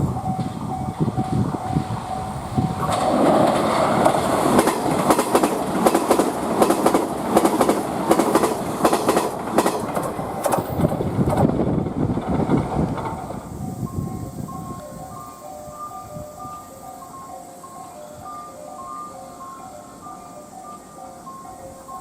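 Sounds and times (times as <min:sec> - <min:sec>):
train wheels clacking over rail joints: 0:02.6 - 0:13.6.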